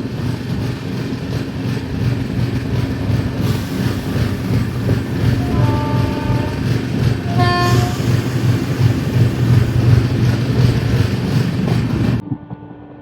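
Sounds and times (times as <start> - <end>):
train wheels rumbling on track: 0.0 - 12.2
short train horn toots: 5.5 - 6.6, 7.4 - 8.1.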